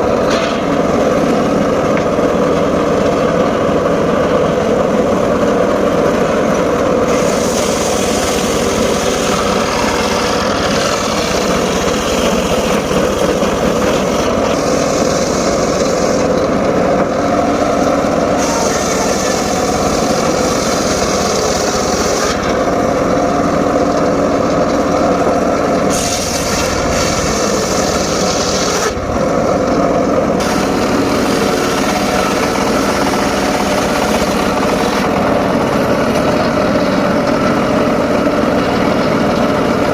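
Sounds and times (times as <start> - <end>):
engine droning: 0.0 - 39.9
saw blade hissing in wood: 7.1 - 16.3, 18.3 - 22.4, 25.9 - 29.0, 30.4 - 35.1.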